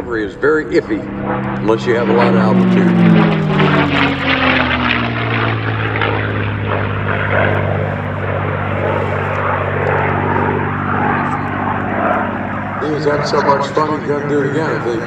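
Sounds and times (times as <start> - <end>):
propeller plane engine drone: 0.0 - 15.0.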